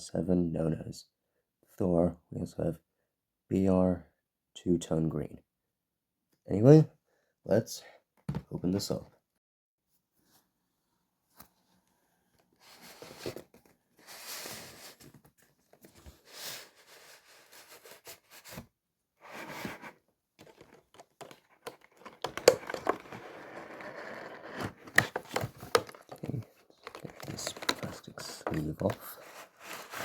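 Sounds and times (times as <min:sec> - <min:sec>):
cardboard packaging rustling: 0:12.6 - 0:18.6, 0:19.2 - 0:30.0
sharp clicks and crinkling: 0:20.4 - 0:23.6.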